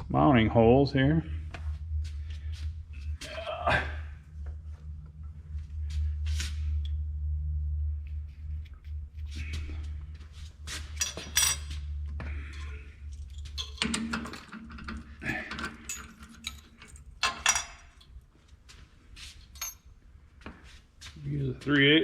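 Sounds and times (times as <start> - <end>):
steady low hum: 0.0 - 22.0
metal tools clinking: 10.9 - 11.8, 12.5 - 18.1, 19.6 - 19.9.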